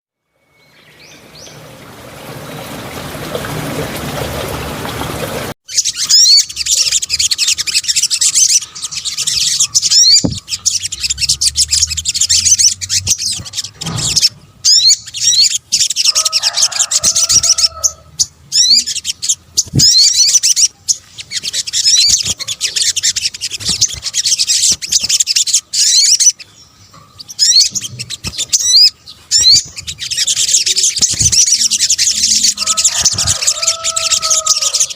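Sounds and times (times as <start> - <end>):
bird twittering trills: 5.6 - 34.9
lower-pitched bird call: 27.4 - 34.9.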